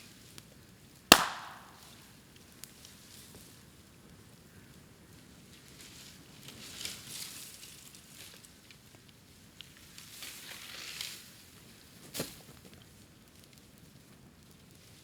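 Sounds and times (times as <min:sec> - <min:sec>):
sharp crack of burning bamboo: 0:01.1 - 0:02.0
bamboo crackling in fire: 0:01.1 - 0:11.6, 0:12.6 - 0:15.0.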